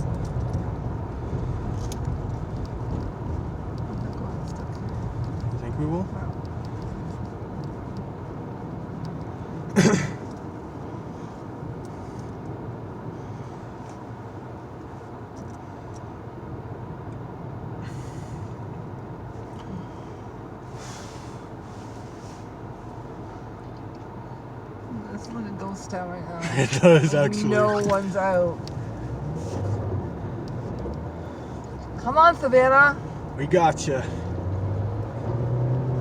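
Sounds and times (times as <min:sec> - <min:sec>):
car engine and road noise: 0:00.0 - 0:36.0
snow hissing under tyres: 0:20.7 - 0:22.5.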